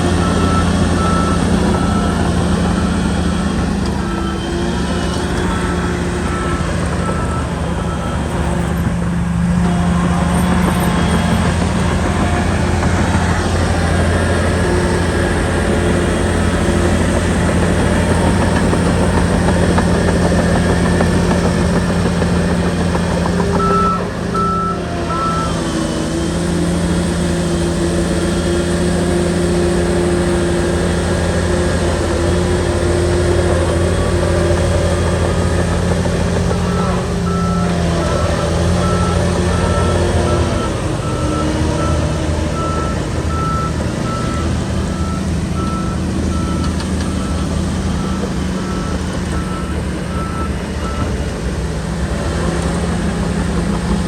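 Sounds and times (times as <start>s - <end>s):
reversing alarm beeping: 0.0s - 26.7s, 34.6s - 51.3s
bulldozer diesel engine running: 0.0s - 54.0s.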